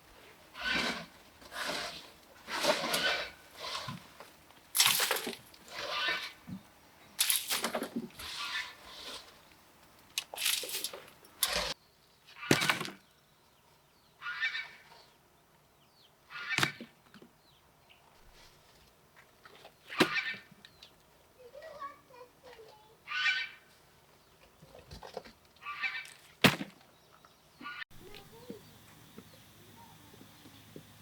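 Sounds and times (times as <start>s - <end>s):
poultry squawking and clucking: 0.5s - 4.1s, 23.0s - 23.8s, 25.6s - 26.2s, 27.6s - 27.8s.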